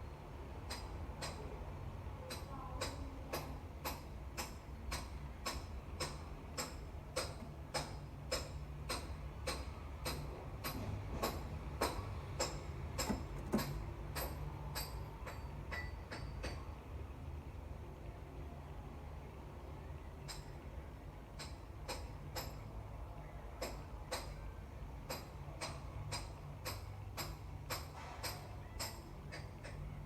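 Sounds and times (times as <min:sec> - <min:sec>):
sharp taps: 0:03.9 - 0:14.3.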